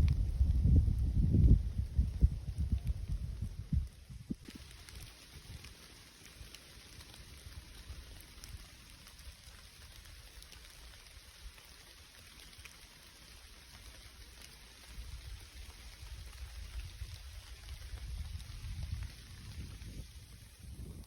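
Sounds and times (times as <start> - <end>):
low rumble: 0.0 - 4.3
light rain hiss: 0.0 - 21.0
raindrops ticking: 0.1 - 20.6.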